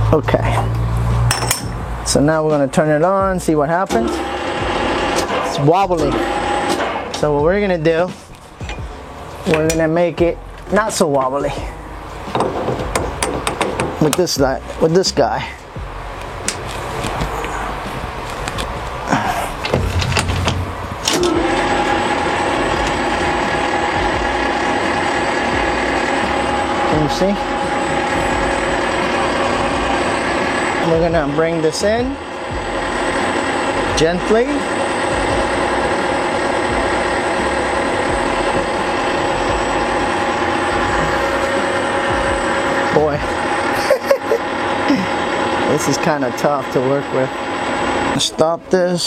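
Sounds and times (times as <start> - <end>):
lathe motor humming: 4.0 - 7.3, 15.6 - 48.6.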